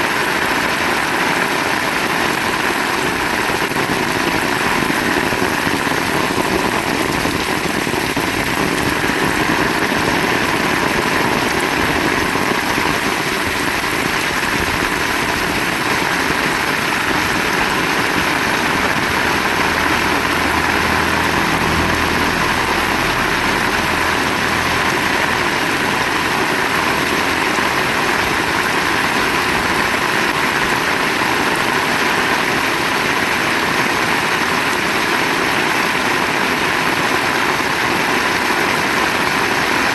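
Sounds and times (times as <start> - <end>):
heavy rain pouring: 0.0 - 39.9
low rumble: 15.5 - 30.0.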